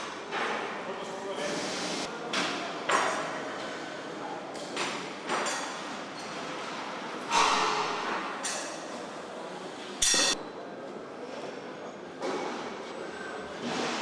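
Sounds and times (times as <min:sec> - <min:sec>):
factory background noise: 0:00.0 - 0:11.4.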